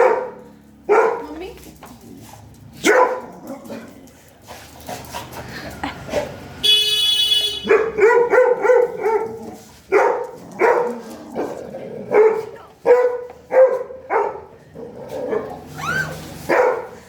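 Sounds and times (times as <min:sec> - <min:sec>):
dog barking: 0:00.0 - 0:01.4, 0:02.8 - 0:03.9, 0:07.4 - 0:14.6, 0:16.4 - 0:17.0.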